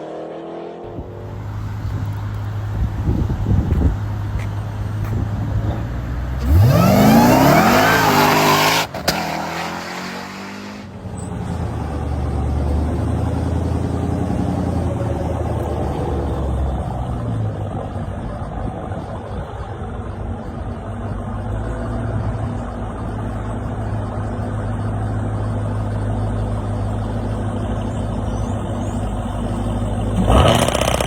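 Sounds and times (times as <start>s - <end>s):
car engine accelerating hard: 0.0s - 18.2s, 26.3s - 31.0s.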